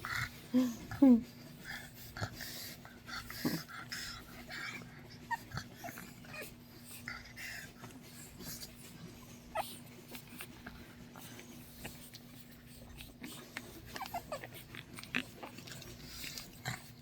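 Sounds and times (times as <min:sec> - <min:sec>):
puppies squeaking and whimpering: 0:04.5 - 0:07.8, 0:08.6 - 0:11.0, 0:11.8 - 0:16.9.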